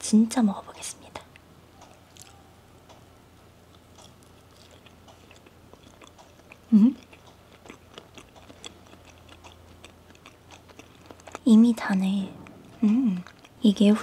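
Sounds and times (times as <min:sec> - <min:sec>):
wet chewing and mouth clicks: 0:01.8 - 0:03.0, 0:03.7 - 0:14.0
person humming mmm: 0:06.6 - 0:07.1, 0:12.7 - 0:13.4.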